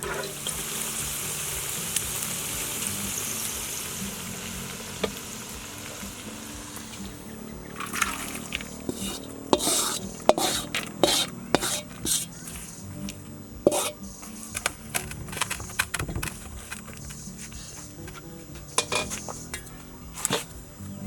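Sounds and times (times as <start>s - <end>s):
faint frying sizzle: 0.0s - 21.0s
utensil scraping a pan: 6.7s - 20.6s.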